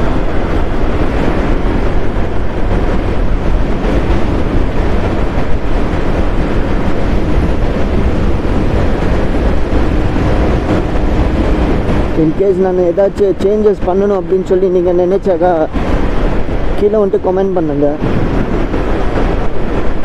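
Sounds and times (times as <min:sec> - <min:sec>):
vehicle engine and road noise: 0:00.0 - 0:20.0
wind rumble on microphone: 0:00.0 - 0:20.0.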